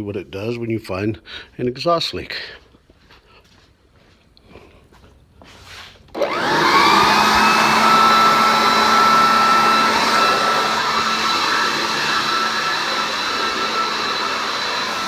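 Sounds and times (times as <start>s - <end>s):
leaf blower whining: 6.1s - 15.0s.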